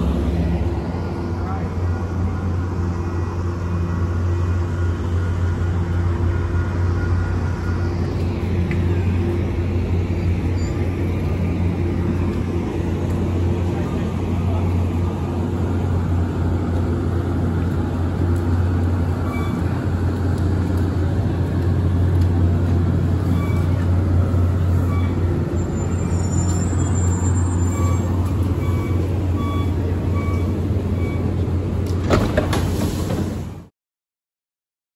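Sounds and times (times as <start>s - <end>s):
diesel train idling hum: 0.0s - 33.7s.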